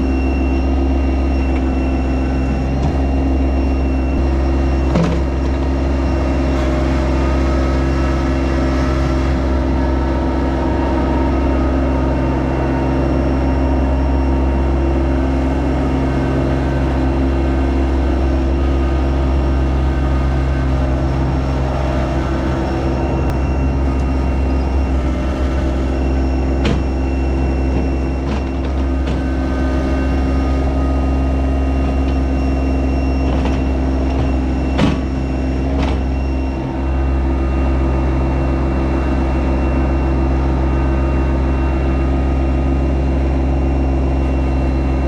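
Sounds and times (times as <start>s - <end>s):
tractor diesel engine droning: 0.0s - 45.0s.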